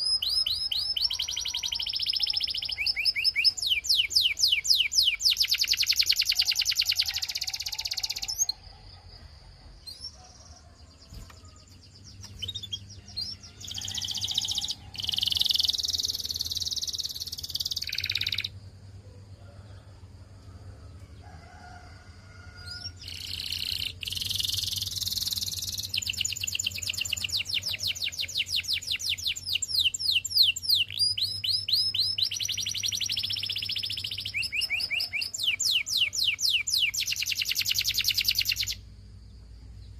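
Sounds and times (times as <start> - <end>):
canary trilling: 0.0 - 8.6, 12.0 - 18.6, 22.7 - 38.8
canary chirps: 0.0 - 9.2, 9.8 - 18.6, 22.6 - 38.9.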